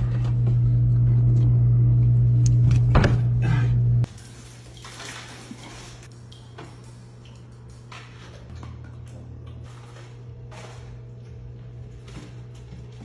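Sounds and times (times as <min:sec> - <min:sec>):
loud low hum: 0:00.0 - 0:04.1.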